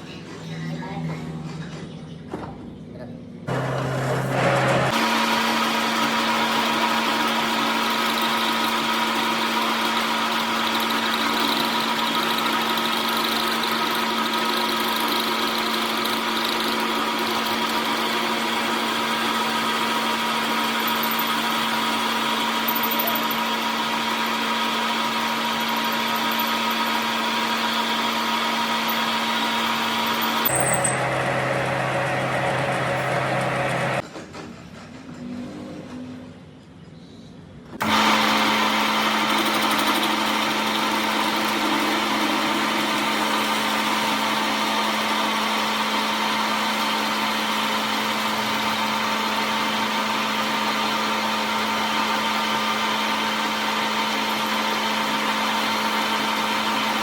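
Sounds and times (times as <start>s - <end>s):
machine motor humming: 3.5s - 34.0s.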